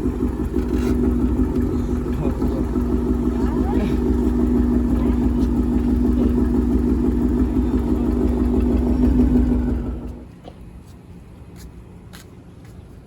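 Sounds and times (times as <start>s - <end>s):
loud car exhaust: 0.0s - 10.3s.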